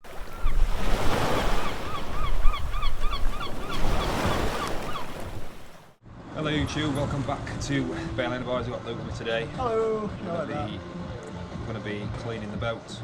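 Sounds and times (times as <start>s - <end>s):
waves rushing: 0.0s - 10.0s
wind: 0.0s - 13.0s
bird calling rapid notes: 0.2s - 5.6s.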